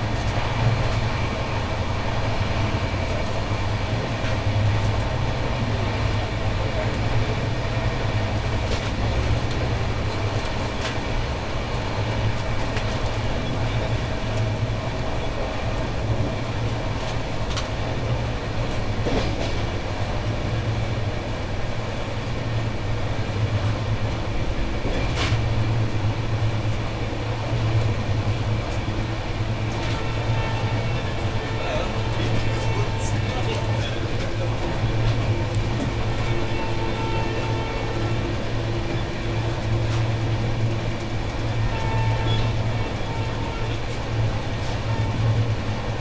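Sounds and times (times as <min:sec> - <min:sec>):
train wheels rumbling on rail: 0:00.0 - 0:46.0
sharp track clicks: 0:08.2 - 0:15.1.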